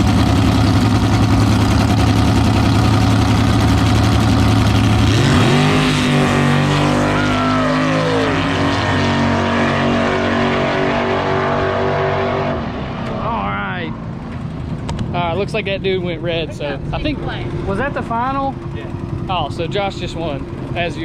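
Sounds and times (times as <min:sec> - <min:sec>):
drag race cars launching: 0:03.4 - 0:13.5
race car passing by: 0:05.1 - 0:13.9.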